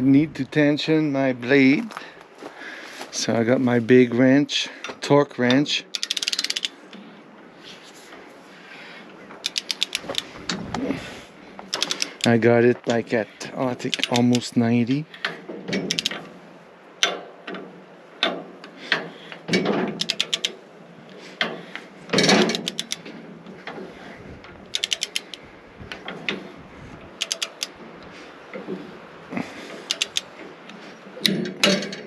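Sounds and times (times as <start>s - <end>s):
ratcheting torque wrench clicking: 5.9s - 6.8s, 9.4s - 10.6s, 11.7s - 12.4s, 13.9s - 14.5s, 15.9s - 16.2s, 20.0s - 20.6s, 22.2s - 23.1s, 24.7s - 25.4s, 27.2s - 27.8s, 29.8s - 32.0s.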